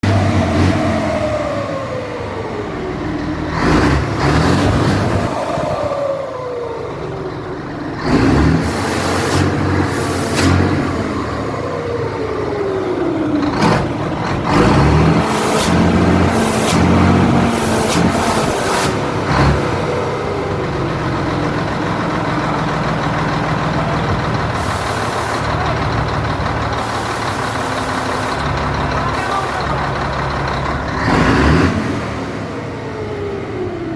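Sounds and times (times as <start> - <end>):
diesel truck engine running: 0.0 - 33.9
hissing bursts: 8.6 - 10.8, 15.1 - 19.1, 24.5 - 25.7, 26.7 - 29.8.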